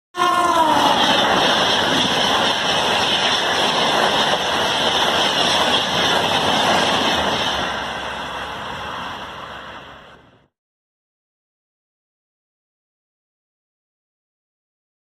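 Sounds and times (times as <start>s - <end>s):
train wheels rushing on rails: 0.2s - 10.5s.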